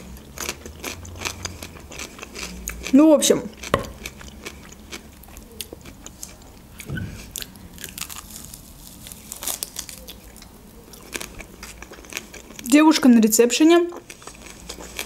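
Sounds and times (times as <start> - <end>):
person biting and chewing meat: 3.6 - 12.6.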